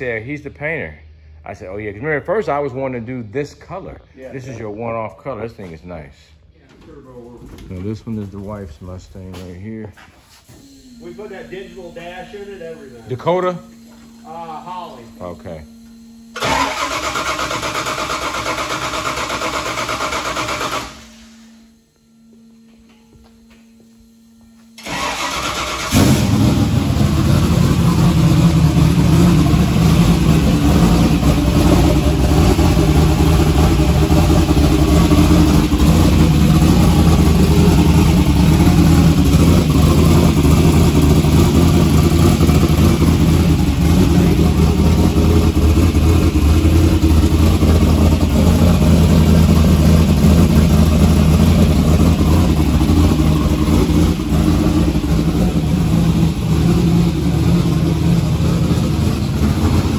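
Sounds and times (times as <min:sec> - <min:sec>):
car engine running: 0:10.6 - 0:59.9
engine starter cranking: 0:16.4 - 0:21.2, 0:24.8 - 0:26.8.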